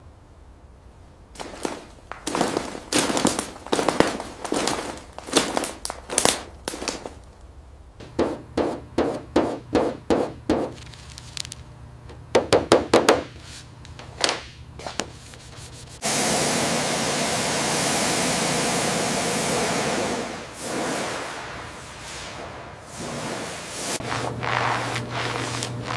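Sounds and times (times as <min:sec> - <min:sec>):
sharp knocks and clanks: 0:08.0 - 0:10.8
loud steady hiss: 0:14.6 - 0:25.9.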